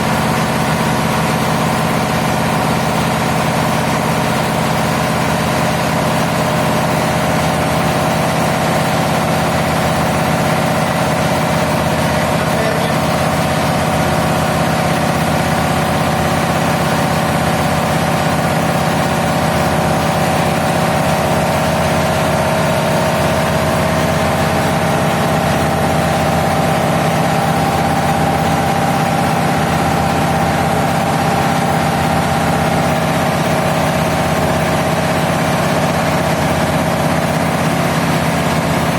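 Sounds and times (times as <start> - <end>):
diesel engine humming: 9.8 - 35.5.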